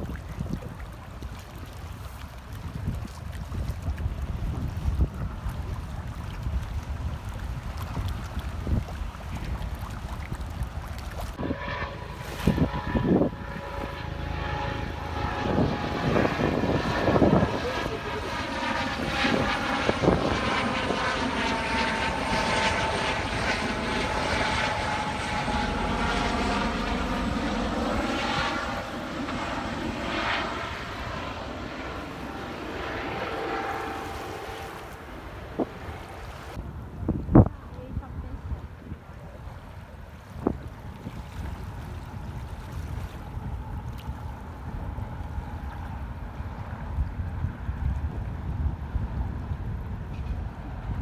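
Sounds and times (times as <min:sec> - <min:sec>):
wind noise: 0:00.0 - 0:51.0
engine drone: 0:11.2 - 0:36.6.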